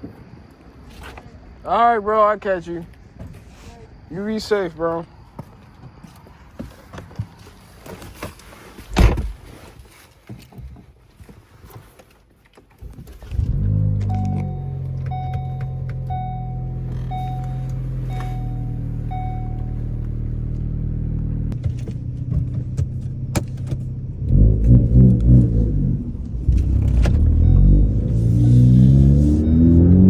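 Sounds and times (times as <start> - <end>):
car engine idling and revving: 13.2 - 30.0
dashboard warning chime: 14.0 - 20.4, 27.2 - 30.0.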